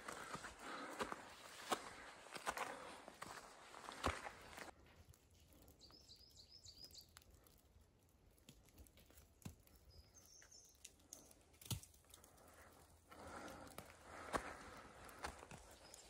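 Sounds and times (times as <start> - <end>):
songbird chirping: 5.6 - 7.2, 9.8 - 11.4, 15.1 - 16.0.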